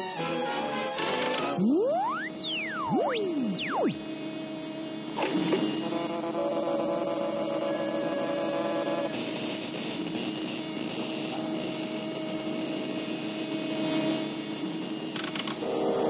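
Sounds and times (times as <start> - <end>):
electrical humming: 0.9 - 5.1.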